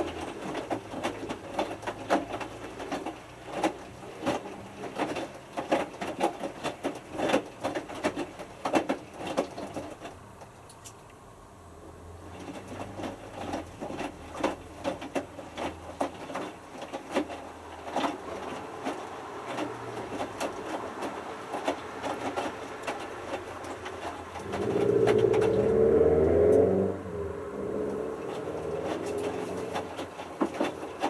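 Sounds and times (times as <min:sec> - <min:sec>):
washing machine drum tumbling: 0:12.2 - 0:31.0
low hum: 0:24.4 - 0:29.7
loud wavering hum: 0:24.5 - 0:29.2.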